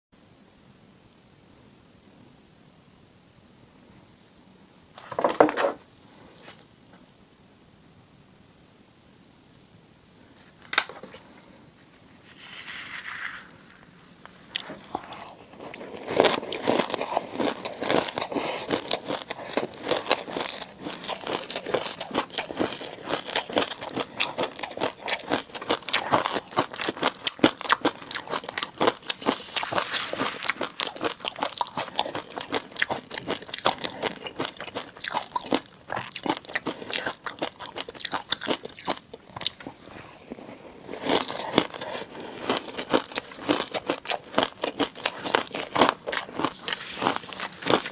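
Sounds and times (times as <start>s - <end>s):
biting and chewing crunches: 12.4s - 47.9s.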